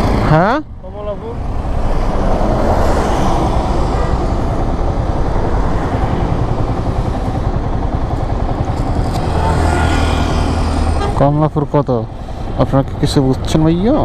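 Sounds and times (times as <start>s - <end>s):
motorcycle engine idling: 3.7s - 11.1s.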